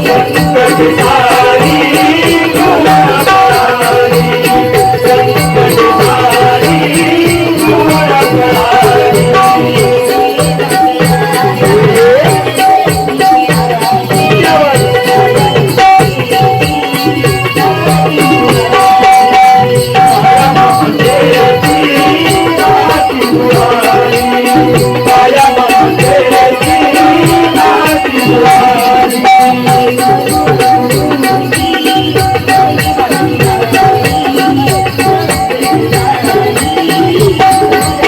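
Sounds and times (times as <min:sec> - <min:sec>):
drum rhythm: 0:00.0 - 0:38.0
metallic ticking percussion: 0:00.0 - 0:38.0.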